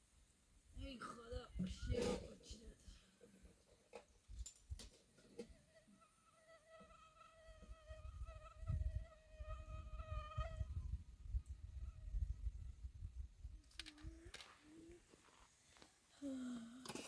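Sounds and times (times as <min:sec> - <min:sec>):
insect buzzing: 0:05.5 - 0:12.8.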